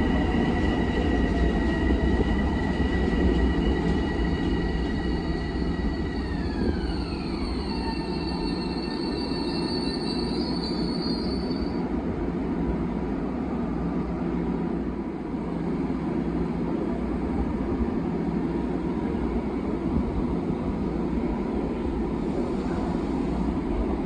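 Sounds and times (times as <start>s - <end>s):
electric train rumble and hum: 0.0s - 24.0s
high squeal: 4.0s - 11.8s.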